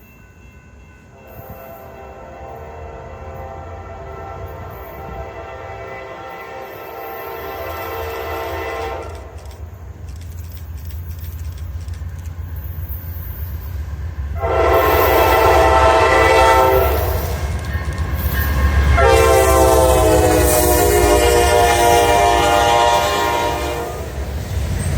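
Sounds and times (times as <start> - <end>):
passing train rumbling: 0.0 - 24.9
locomotive air horn: 1.2 - 9.4, 14.4 - 17.4, 18.9 - 24.2
wheels clicking over rail joints: 8.8 - 14.3, 16.8 - 19.0.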